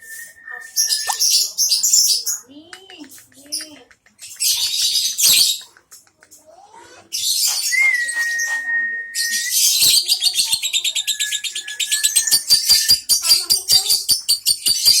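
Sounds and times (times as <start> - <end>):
bird steady high tone: 0.0 - 2.5, 7.3 - 15.0
bird repeated chirps: 9.6 - 15.0
bird harsh chattering calls: 9.8 - 15.0.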